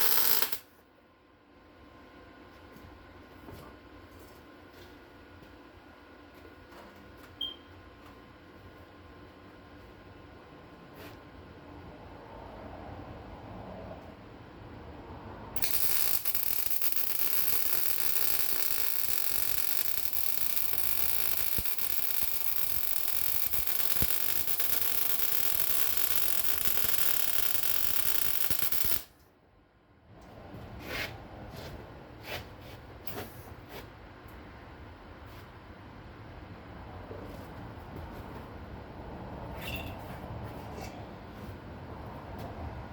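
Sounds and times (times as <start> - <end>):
arc welder crackling hiss: 0.0 - 0.7, 15.6 - 29.2.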